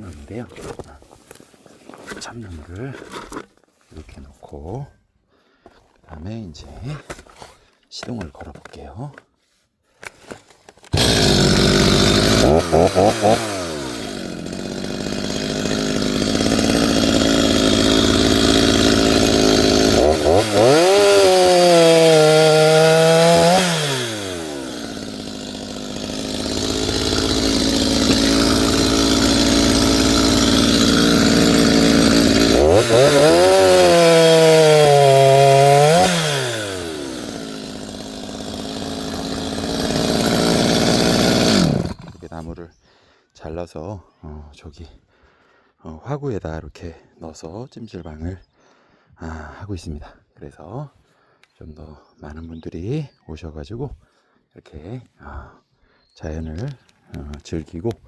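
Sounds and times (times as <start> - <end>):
chainsaw cutting log: 10.8 - 42.5.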